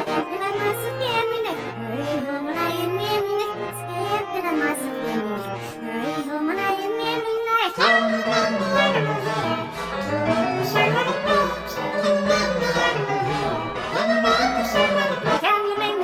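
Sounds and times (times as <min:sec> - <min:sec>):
child-like singing voice: 0:00.0 - 0:16.0
backing music: 0:07.8 - 0:15.9.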